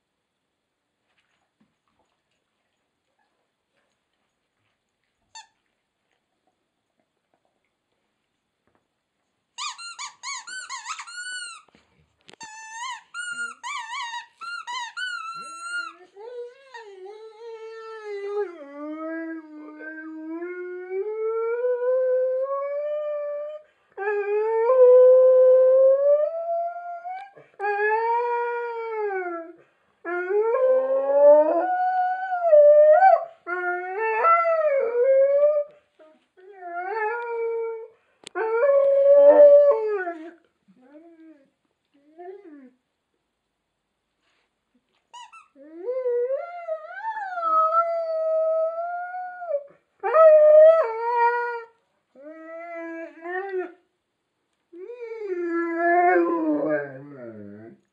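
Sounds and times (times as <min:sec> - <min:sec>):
dog squeaking and whining: 0:09.6 - 0:11.7, 0:12.4 - 0:18.3, 0:45.1 - 0:45.8.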